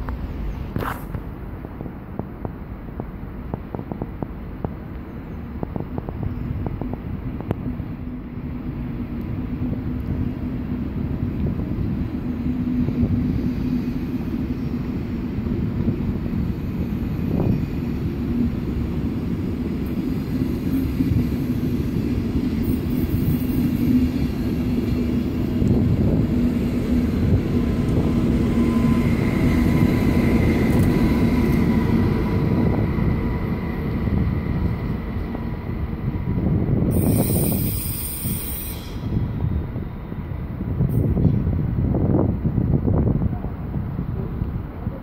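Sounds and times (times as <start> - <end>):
wheels rumbling on rail: 0.0 - 45.0
brief hiss: 37.0 - 39.2.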